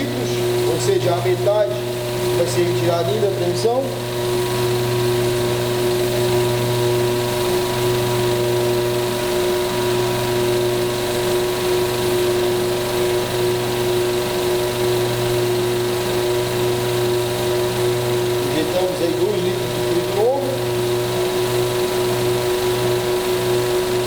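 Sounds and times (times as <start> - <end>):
steady whine: 15.2 - 24.0.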